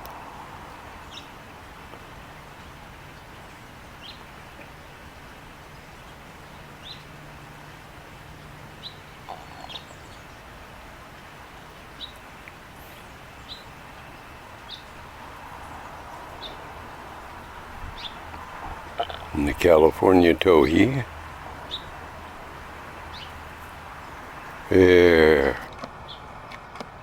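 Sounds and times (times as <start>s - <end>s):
low outdoor background noise: 0.0s - 27.0s
bird chip calls: 8.8s - 10.5s, 11.8s - 26.3s.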